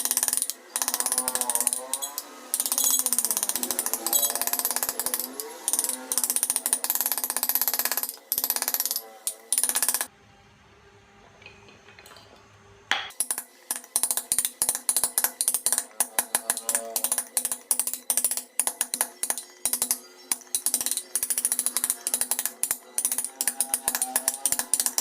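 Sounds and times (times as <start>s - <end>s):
carving tool cutting wood: 0.0s - 10.1s, 13.2s - 25.0s.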